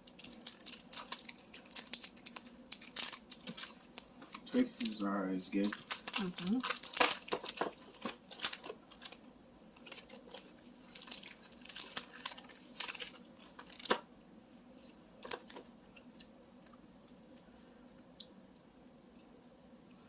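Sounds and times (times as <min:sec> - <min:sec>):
wrapper crinkling: 0:00.0 - 0:14.0, 0:15.2 - 0:15.6.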